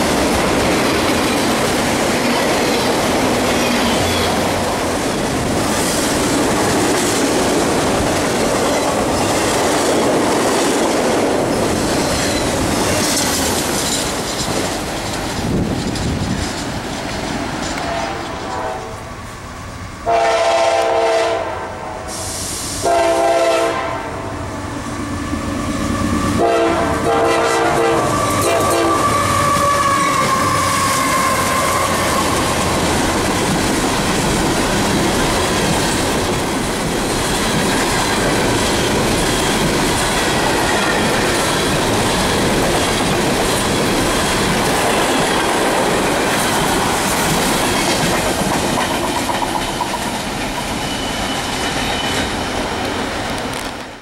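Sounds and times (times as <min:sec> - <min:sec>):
wheels clacking over rail joints: 0:00.0 - 0:18.6, 0:28.2 - 0:54.0
train rumbling past: 0:00.0 - 0:54.0
locomotive air horn blasts: 0:17.8 - 0:19.1, 0:20.0 - 0:24.4, 0:26.2 - 0:32.2.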